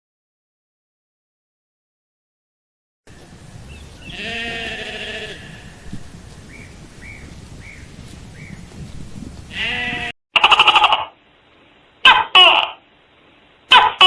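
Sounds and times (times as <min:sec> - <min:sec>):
livestock bleating: 0:04.0 - 0:05.8, 0:09.5 - 0:11.1
loud animal call: 0:09.5 - 0:11.2, 0:12.0 - 0:12.8.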